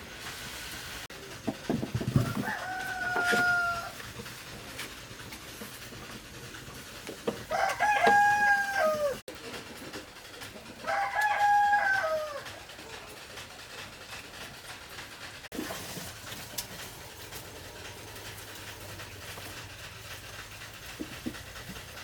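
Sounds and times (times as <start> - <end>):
rooster crowing: 2.2 - 4.0, 7.5 - 9.2, 10.8 - 12.6.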